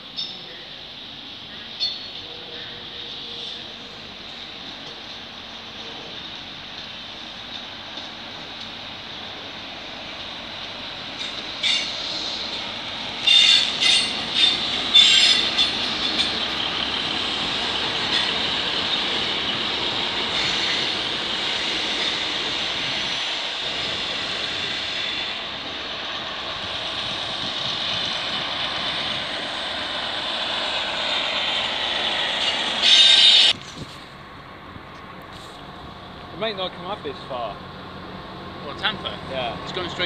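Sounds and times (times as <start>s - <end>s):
train rolling past: 0.0s - 40.0s
wheels squealing: 13.2s - 16.7s.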